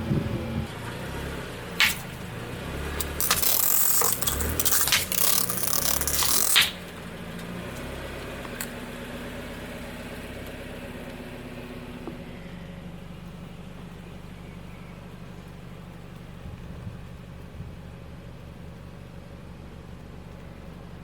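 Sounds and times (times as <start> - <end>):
car engine idling: 0.0 - 4.8, 6.8 - 21.0
car tyre crunching over object: 1.7 - 7.8.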